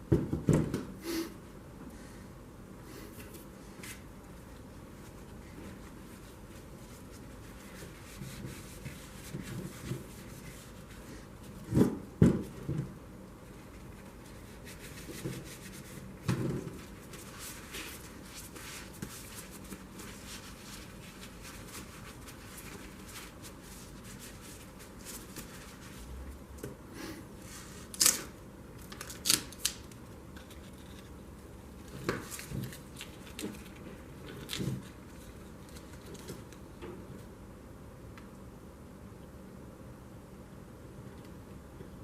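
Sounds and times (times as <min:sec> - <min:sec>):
rubbing and shuffling: 0:13.6 - 0:26.2.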